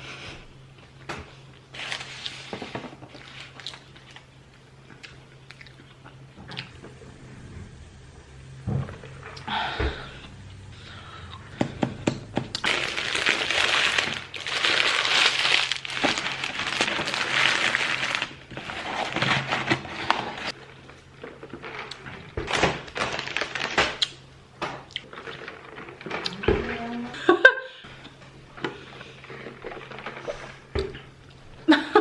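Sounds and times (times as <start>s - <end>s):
paper rustling and crinkling: 1.7s - 4.2s, 12.6s - 20.6s, 22.5s - 24.0s.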